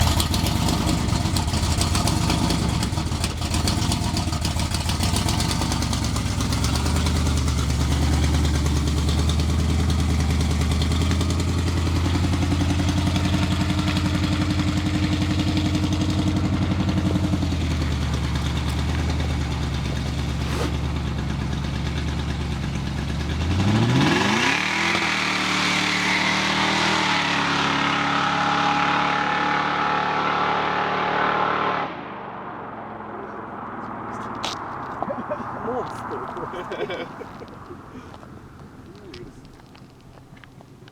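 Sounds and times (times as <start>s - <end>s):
car engine revving hard: 0.0s - 18.9s, 23.2s - 34.3s.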